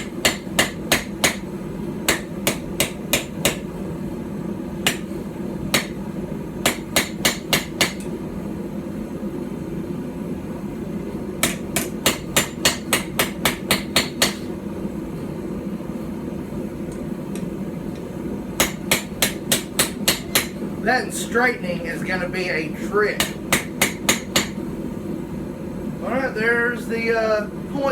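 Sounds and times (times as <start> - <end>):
hammer striking hot steel: 0.0 - 1.5, 2.1 - 3.7, 4.8 - 6.0, 6.6 - 8.2, 11.4 - 14.5, 18.6 - 20.6, 23.2 - 24.6.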